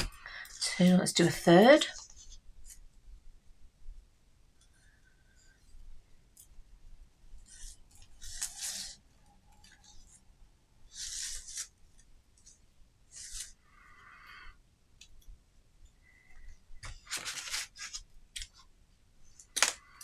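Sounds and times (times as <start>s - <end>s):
wire rustling and scraping: 7.4s - 10.3s, 10.9s - 13.7s, 16.4s - 20.0s.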